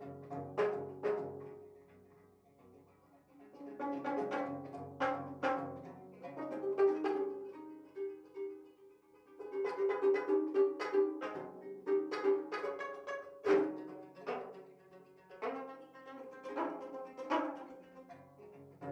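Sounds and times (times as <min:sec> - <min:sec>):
plucked zither notes: 0:00.0 - 0:02.0, 0:03.3 - 0:18.9.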